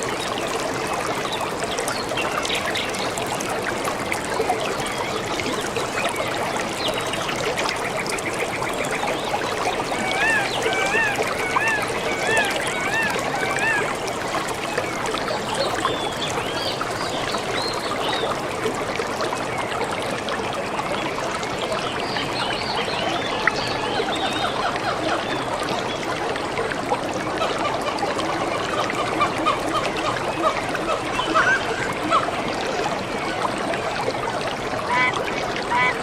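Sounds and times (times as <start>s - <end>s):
water trickling: 0.0s - 36.0s
lower bird calls: 9.9s - 13.9s.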